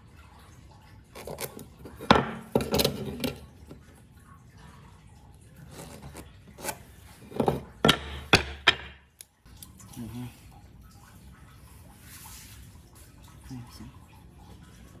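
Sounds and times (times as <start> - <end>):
wood knocking and clattering: 1.2 - 3.4, 5.9 - 9.1.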